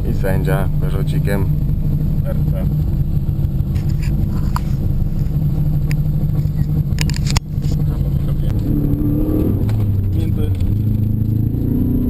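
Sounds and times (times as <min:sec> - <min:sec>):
car engine idling inside cabin: 0:00.0 - 0:08.7, 0:09.5 - 0:11.4.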